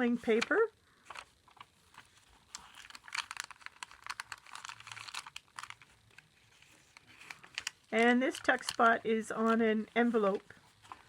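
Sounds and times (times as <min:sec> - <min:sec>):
paper pages turning and rustling: 0:00.2 - 0:11.0.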